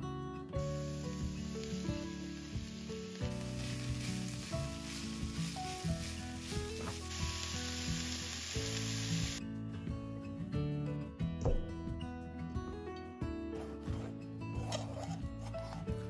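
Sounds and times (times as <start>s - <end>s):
soft background music: 0.0s - 16.0s
vegetables sizzling in a frying pan: 0.6s - 9.4s.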